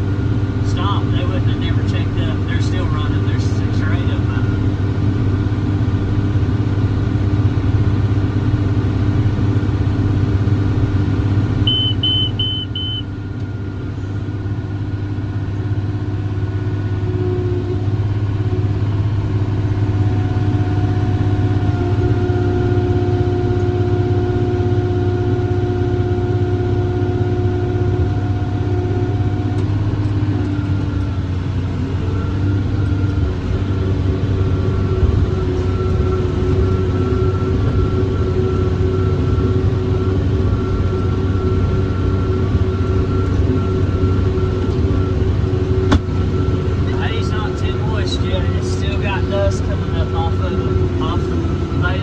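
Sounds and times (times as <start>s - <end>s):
round baler operating: 0.0s - 52.0s
tractor diesel engine running: 0.0s - 52.0s
high electronic beeps: 11.7s - 13.1s.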